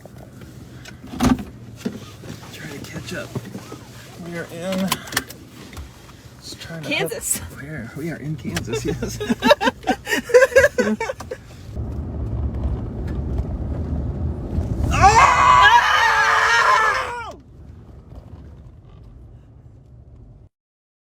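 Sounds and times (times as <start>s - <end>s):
low steady rumble: 0.0s - 20.5s
person screaming: 14.9s - 17.4s.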